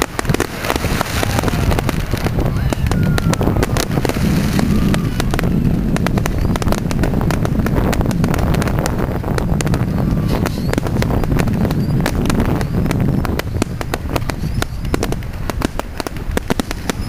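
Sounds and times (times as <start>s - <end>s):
fireworks crackling pops: 0.0s - 17.0s
wind on microphone: 0.0s - 17.0s
low rumble: 0.1s - 15.3s.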